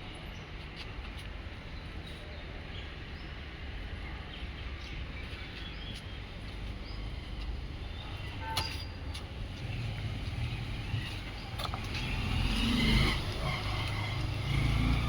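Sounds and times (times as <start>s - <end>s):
car engine and road noise: 3.6s - 15.0s.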